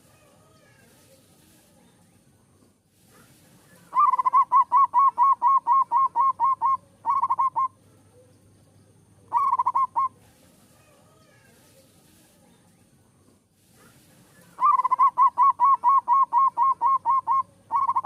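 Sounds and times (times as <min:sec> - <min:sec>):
dove cooing: 0:03.7 - 0:08.3, 0:09.3 - 0:10.2, 0:14.4 - 0:18.0.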